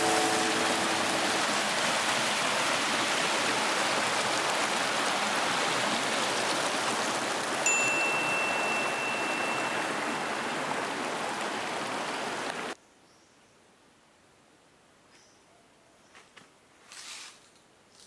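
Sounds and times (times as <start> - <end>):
water rushing down waterfall: 0.0 - 12.8.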